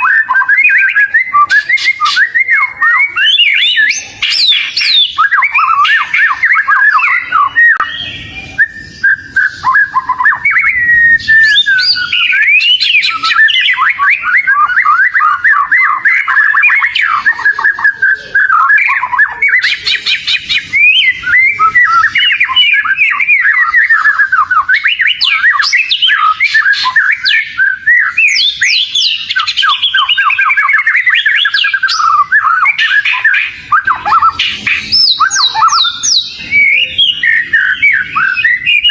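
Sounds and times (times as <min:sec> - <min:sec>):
bird singing varied song: 0:00.0 - 0:38.9.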